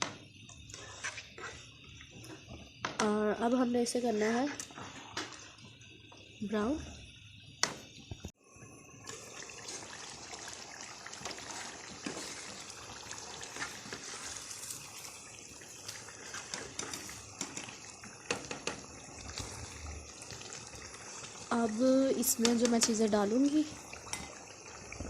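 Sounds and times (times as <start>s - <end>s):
chicken sizzling in hot oil: 8.4s - 25.0s.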